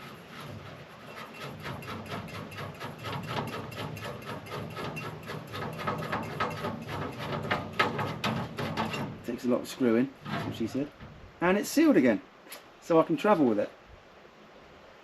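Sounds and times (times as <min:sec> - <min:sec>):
threads scraping and creaking: 0:00.0 - 0:11.2.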